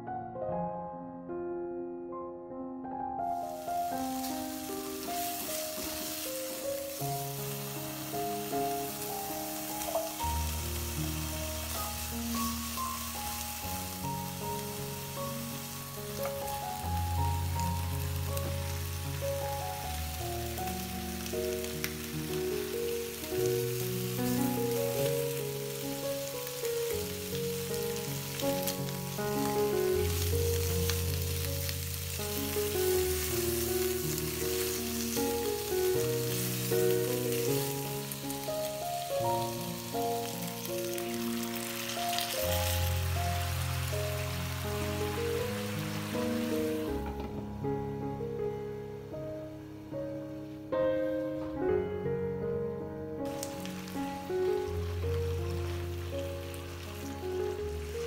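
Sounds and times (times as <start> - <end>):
meat sizzling in a frying pan: 3.4 - 47.1, 53.3 - 58.0.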